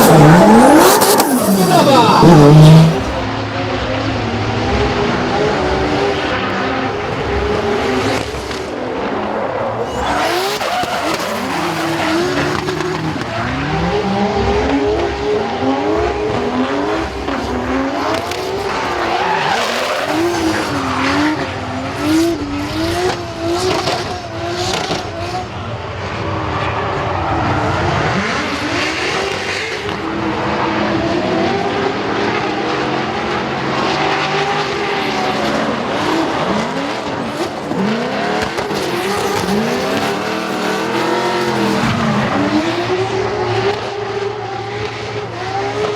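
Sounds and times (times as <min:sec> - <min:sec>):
tyres squealing: 0:00.0 - 0:03.2
car engine revving: 0:00.0 - 0:45.9.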